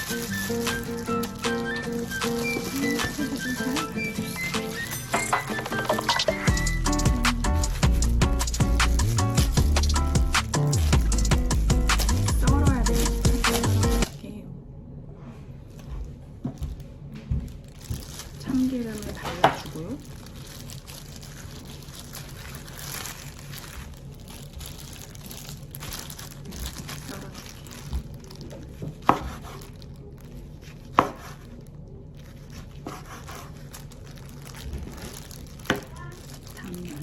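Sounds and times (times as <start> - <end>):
utensils knocking on hard surface: 5.0 - 6.4
low background noise: 12.3 - 37.0.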